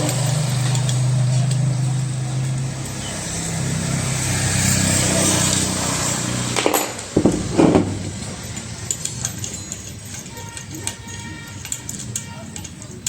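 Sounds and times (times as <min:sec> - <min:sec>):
sharp knocks: 0:06.6 - 0:08.6.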